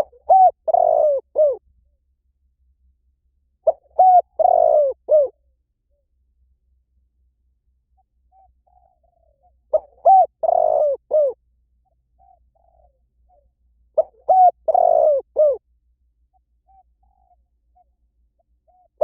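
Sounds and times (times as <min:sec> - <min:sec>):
dove cooing: 0:00.0 - 0:01.6, 0:03.6 - 0:05.4, 0:08.0 - 0:15.6, 0:16.6 - 0:19.0.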